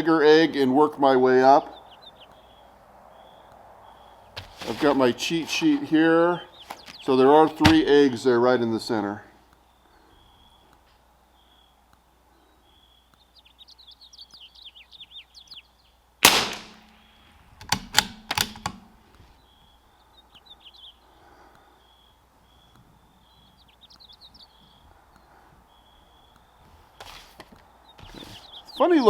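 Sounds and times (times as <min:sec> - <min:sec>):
birds chirping: 0:00.0 - 0:29.0
rifle shot: 0:16.2 - 0:17.1
rifle bolt metallic clicks: 0:17.6 - 0:18.9.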